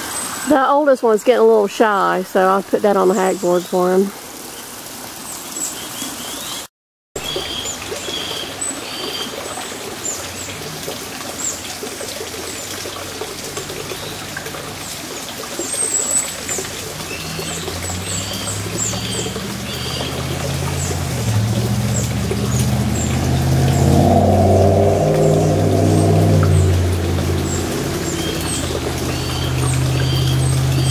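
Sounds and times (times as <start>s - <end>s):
low engine rumble: 16.3s - 30.9s.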